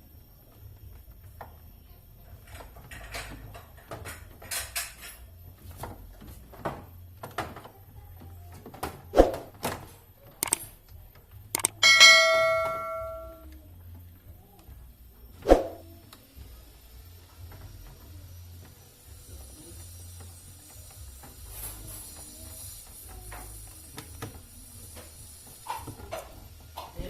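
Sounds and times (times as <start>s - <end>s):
parts clicking and knocking: 10.4s - 10.7s, 11.6s - 13.4s
struck metal ringing: 11.6s - 13.4s.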